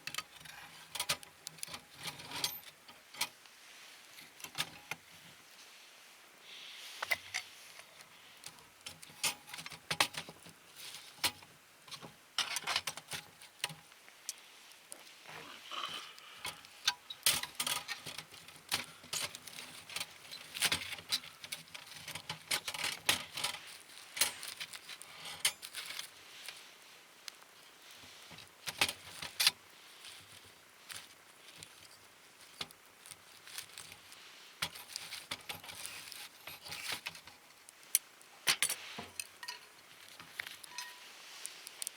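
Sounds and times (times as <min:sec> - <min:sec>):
wood fire crackling and popping: 0:16.0 - 0:41.9.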